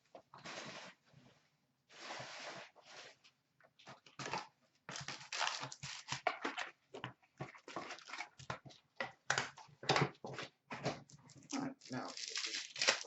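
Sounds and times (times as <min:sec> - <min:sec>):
foil wrappers tearing and crinkling: 0:04.9 - 0:06.3, 0:11.4 - 0:13.0.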